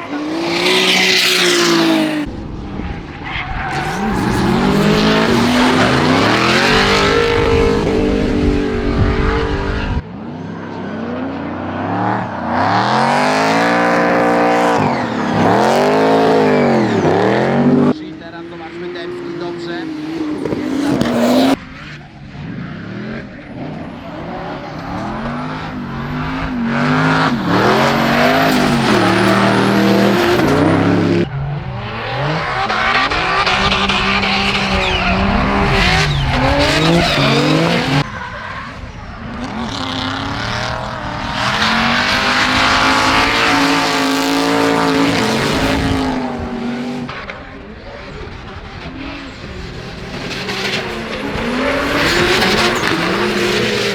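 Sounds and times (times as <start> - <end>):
car engines revving hard: 0.0 - 53.9
tyres squealing: 25.7 - 45.4.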